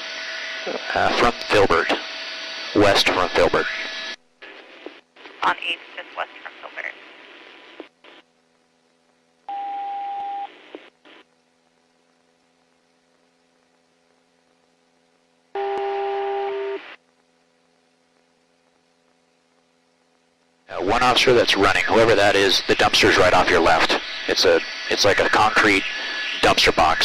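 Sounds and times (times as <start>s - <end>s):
radio static hiss: 0.0s - 9.5s, 10.3s - 27.0s.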